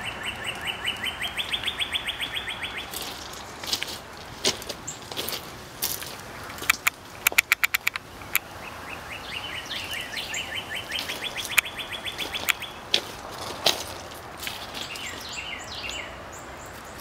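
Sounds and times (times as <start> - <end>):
songbird trilling: 0.0 - 3.2, 6.3 - 12.9
sharp clicks: 6.5 - 8.5, 11.4 - 12.6.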